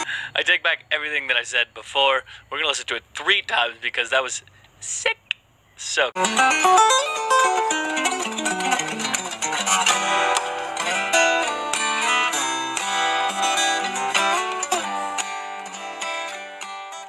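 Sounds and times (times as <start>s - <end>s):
fingerstyle acoustic guitar: 6.2s - 17.0s.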